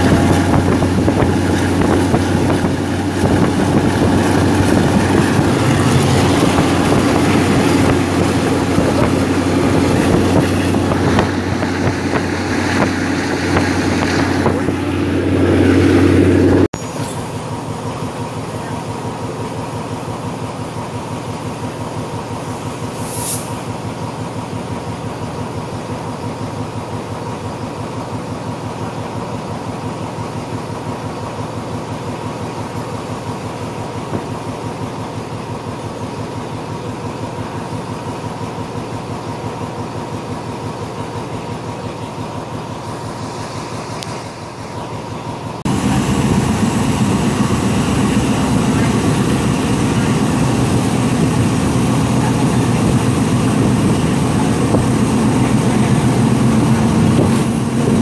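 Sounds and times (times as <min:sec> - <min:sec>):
low train hum: 0:00.0 - 0:58.0
train drone: 0:00.0 - 0:58.0
wind rush and train running noise: 0:00.0 - 0:58.0
brief hiss: 0:22.9 - 0:23.7.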